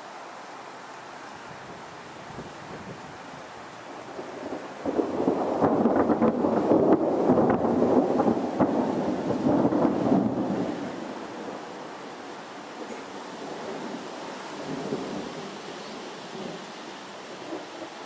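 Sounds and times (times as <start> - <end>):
thunder rumbling with crackles: 3.8 - 11.8, 14.6 - 16.6, 17.3 - 18.0.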